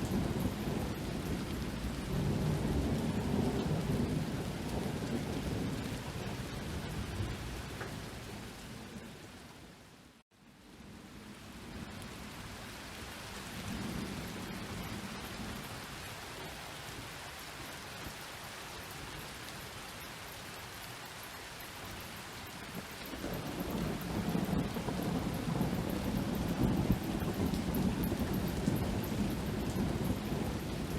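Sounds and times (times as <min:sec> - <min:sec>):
distant thunder rumble: 0:00.0 - 0:09.2, 0:22.7 - 0:30.9
steady rain falling: 0:00.0 - 0:30.9.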